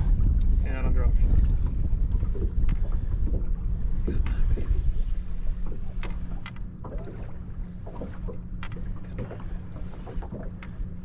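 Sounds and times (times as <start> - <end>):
wind rumbling on microphone: 0.0 - 8.4
steady low hum: 0.0 - 11.0.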